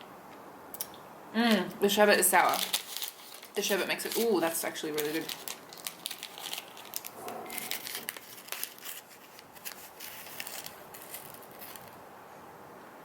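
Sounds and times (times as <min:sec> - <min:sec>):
plastic packet crinkling: 0:02.2 - 0:12.0.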